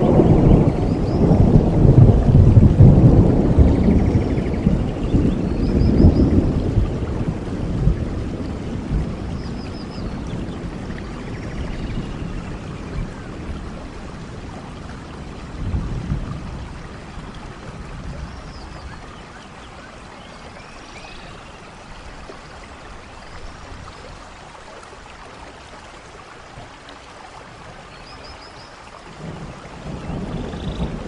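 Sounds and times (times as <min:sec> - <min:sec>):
low rumble of thunder: 0:00.0 - 0:19.8, 0:29.1 - 0:31.0
steady rainfall: 0:00.0 - 0:31.0.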